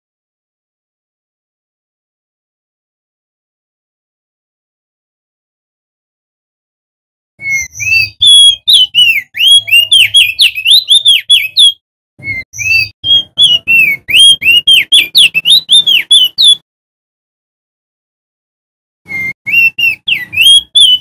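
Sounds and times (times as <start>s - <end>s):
bird singing whistled notes: 7.4s - 16.6s, 19.1s - 21.0s.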